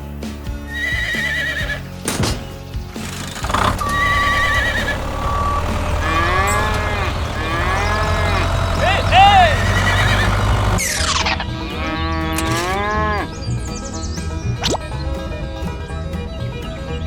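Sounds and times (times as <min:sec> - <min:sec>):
rising and falling pitch glides: 0:03.7 - 0:11.6
steady beep: 0:03.8 - 0:05.8
warbling whistle tones: 0:03.8 - 0:06.6.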